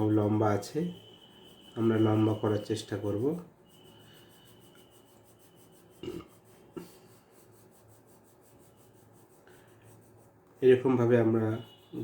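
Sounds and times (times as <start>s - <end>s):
pencil rubbing on paper: 0.0s - 12.0s.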